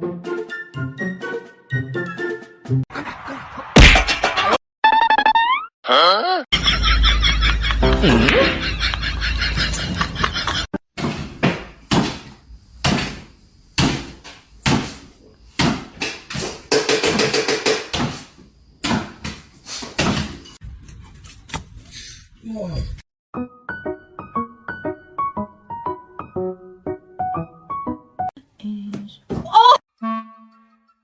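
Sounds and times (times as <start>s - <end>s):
irregular knocks and thumps: 11.0s - 20.4s.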